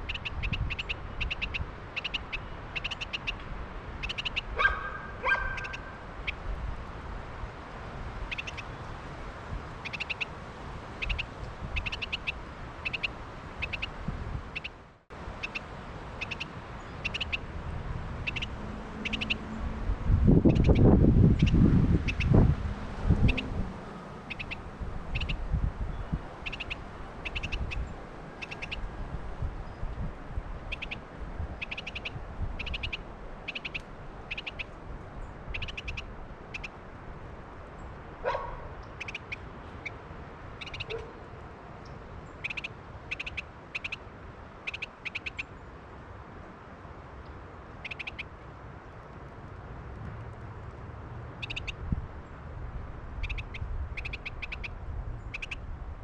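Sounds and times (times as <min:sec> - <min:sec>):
wind on microphone: 0:13.8 - 0:14.6, 0:19.3 - 0:33.0, 0:51.6 - 0:56.0.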